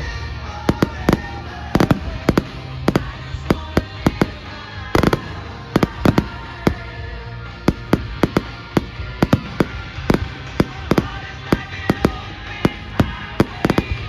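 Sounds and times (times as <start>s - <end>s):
fireworks banging: 0.0s - 14.0s.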